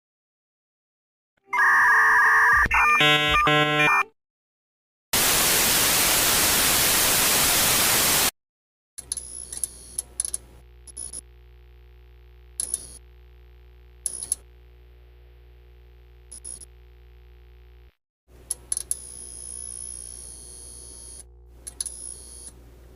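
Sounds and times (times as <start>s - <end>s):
low electrical hum: 9.0s - 22.9s
clicks: 12.6s - 13.0s, 14.0s - 14.5s, 21.6s - 22.0s.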